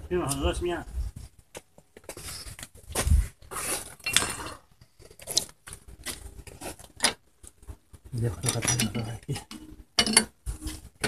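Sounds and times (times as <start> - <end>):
metal objects clinking: 4.0 - 4.6, 8.2 - 10.8.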